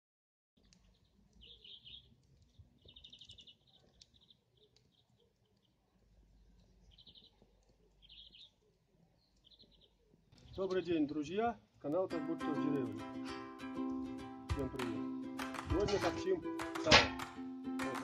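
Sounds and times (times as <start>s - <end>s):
small birds chirping: 0.6s - 12.1s.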